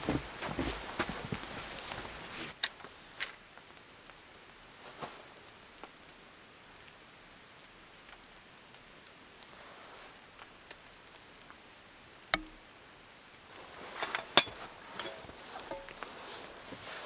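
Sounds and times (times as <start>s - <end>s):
dishes and utensils clinking: 12.4s - 12.6s, 13.8s - 16.5s
sharp knock: 12.4s - 12.6s.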